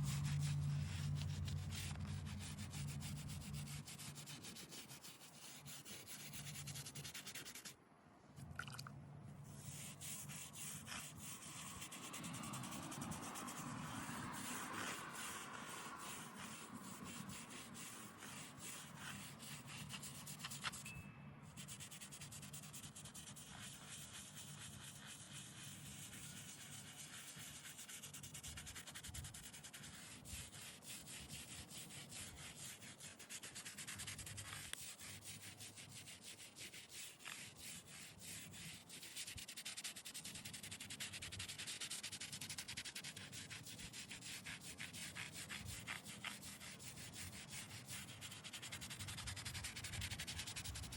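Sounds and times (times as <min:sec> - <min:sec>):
scrubbing on stone: 0:31.6 - 0:50.9.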